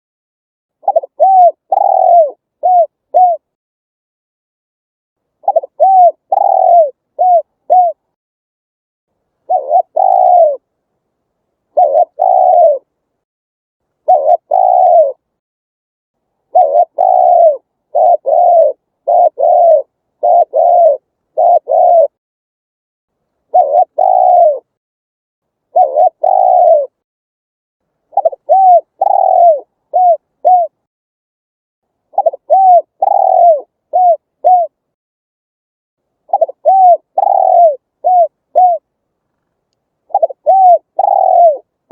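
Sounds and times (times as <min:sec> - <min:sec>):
dove cooing: 0:00.8 - 0:03.6, 0:05.4 - 0:08.1, 0:09.5 - 0:10.7, 0:11.7 - 0:12.9, 0:14.0 - 0:15.2, 0:16.5 - 0:22.2, 0:23.5 - 0:24.7, 0:25.7 - 0:27.0, 0:28.1 - 0:30.8, 0:32.1 - 0:34.8, 0:36.3 - 0:38.9, 0:40.1 - 0:41.8.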